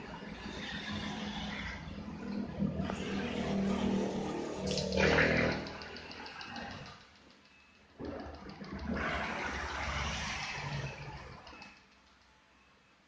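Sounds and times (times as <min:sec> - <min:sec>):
motorcycle engine revving: 0:01.0 - 0:06.9.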